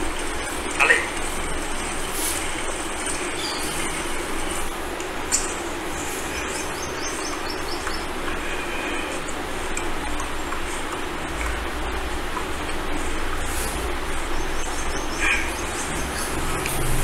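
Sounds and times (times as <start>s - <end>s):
bird chirping: 0.0s - 9.4s, 13.5s - 17.0s
outdoor background noise: 0.0s - 17.0s.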